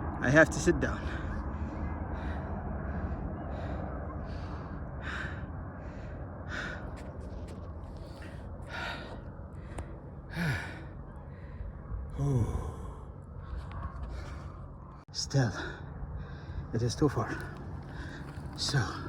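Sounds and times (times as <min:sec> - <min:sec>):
man breathing hard and sighing: 0:08.2 - 0:14.5.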